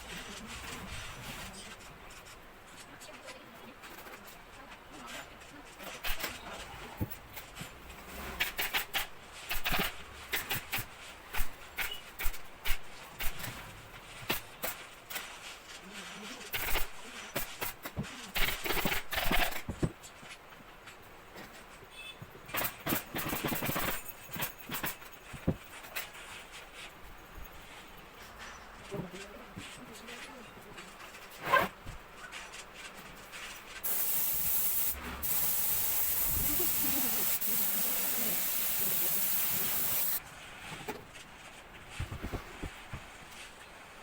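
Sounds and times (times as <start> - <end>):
faint rustle: 0.0 - 18.7, 19.5 - 44.0
clicks and scrapes: 22.5 - 26.9.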